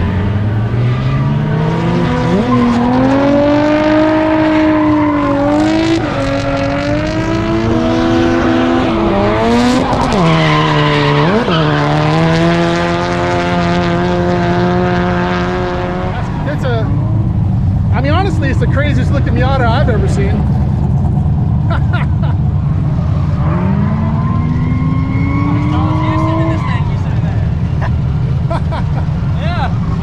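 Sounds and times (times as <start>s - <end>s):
car engine revving hard: 0.0s - 28.5s
tyres squealing: 8.2s - 12.2s, 24.1s - 27.5s.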